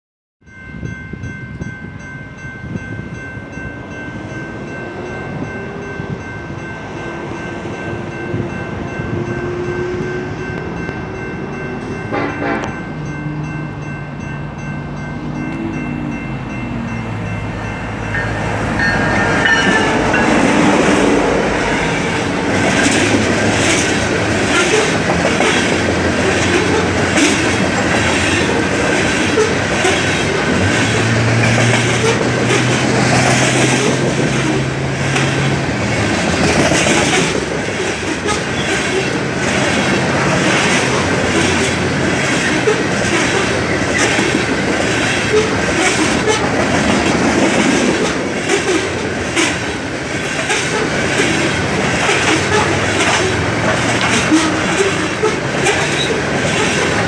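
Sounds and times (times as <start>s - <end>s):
diesel engines rumbling: 3.4s - 57.0s
wheels clacking over rail joints: 14.9s - 57.0s.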